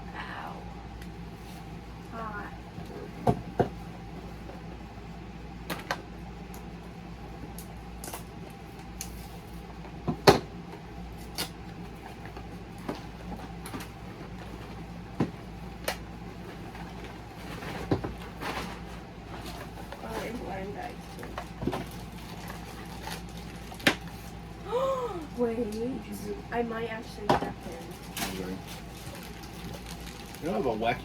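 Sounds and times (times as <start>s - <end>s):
steady low hum: 0.0s - 31.0s
toy packaging crinkling and clicking: 21.1s - 24.1s, 27.7s - 30.6s.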